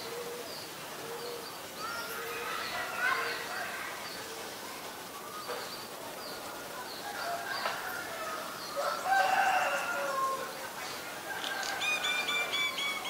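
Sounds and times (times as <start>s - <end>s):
bird calls: 8.5s - 13.0s.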